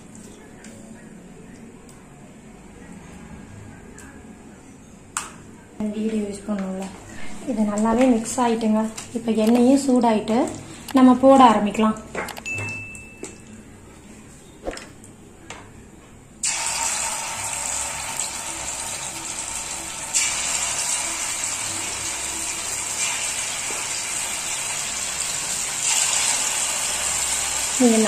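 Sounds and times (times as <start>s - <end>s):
chicken sizzling in hot oil: 16.4s - 28.0s.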